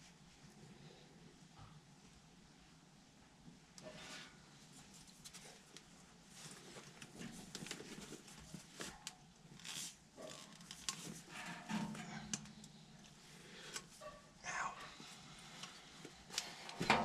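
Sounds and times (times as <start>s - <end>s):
handling metal parts and tools: 10.2s - 13.2s.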